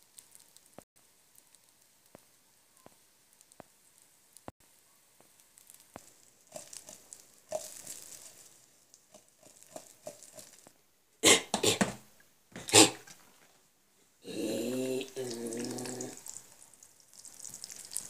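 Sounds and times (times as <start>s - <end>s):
food frying with pops: 0.0s - 10.9s, 14.6s - 18.0s
soft crackling hiss: 0.0s - 18.0s.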